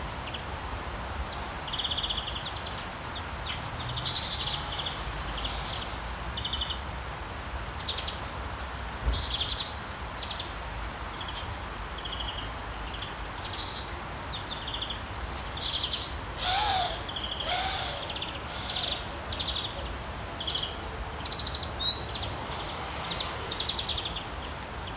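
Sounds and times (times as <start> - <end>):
birds chirping: 12.0 - 24.9
low sliding bird calls: 16.4 - 19.7, 21.8 - 24.4.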